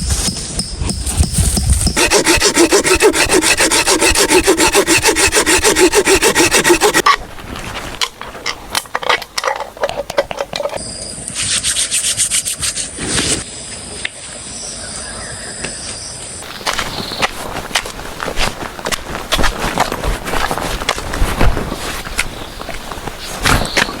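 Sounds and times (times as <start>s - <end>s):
wood being scraped or sawn: 2.0s - 8.7s, 16.4s - 24.0s.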